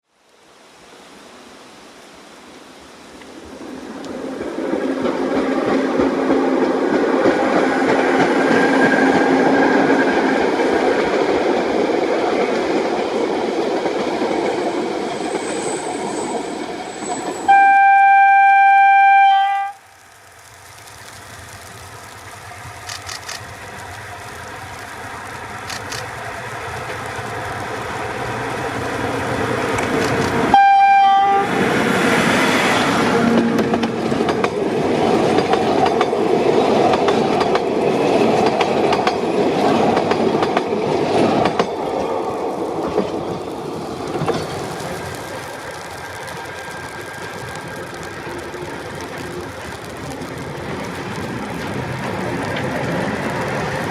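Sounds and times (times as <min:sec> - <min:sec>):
diesel train rumbling: 0:03.5 - 0:19.1, 0:19.9 - 0:53.9
train horn blast: 0:17.5 - 0:19.8, 0:30.5 - 0:31.6
faint clicks: 0:22.8 - 0:24.0.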